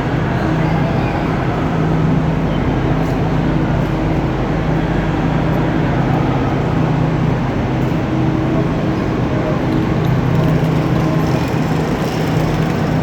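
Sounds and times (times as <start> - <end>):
vehicle engine humming: 8.1 - 13.0.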